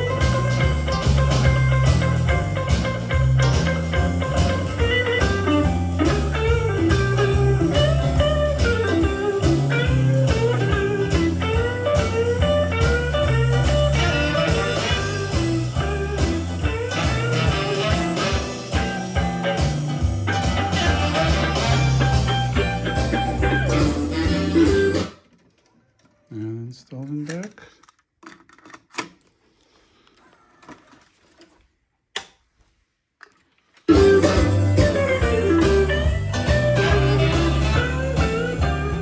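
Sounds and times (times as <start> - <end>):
blues-rock music: 0.0 - 25.2, 33.9 - 39.0.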